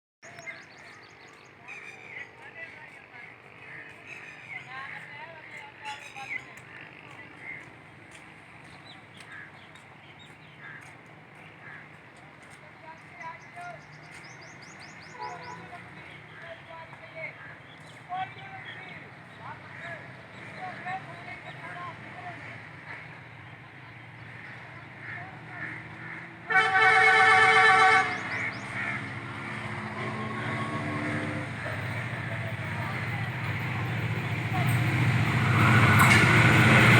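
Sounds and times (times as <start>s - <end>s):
birds chirping: 0.2s - 36.9s
locomotive engine rumbling: 18.4s - 36.9s
locomotive air horn blast: 26.4s - 29.0s.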